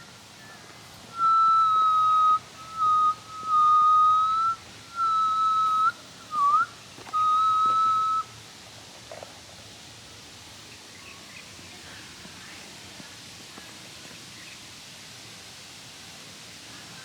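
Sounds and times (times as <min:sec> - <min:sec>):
person whistling: 0:01.2 - 0:08.3.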